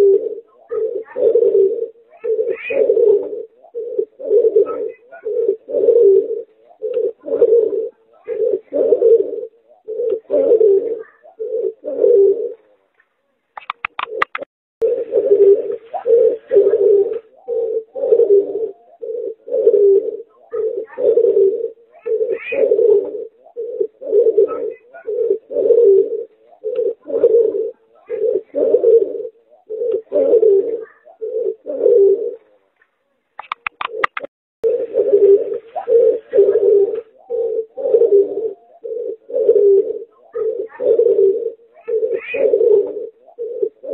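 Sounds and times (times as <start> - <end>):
dove cooing: 0.0 - 12.9, 13.6 - 32.7, 33.4 - 43.9
sharp taps: 13.6 - 14.5.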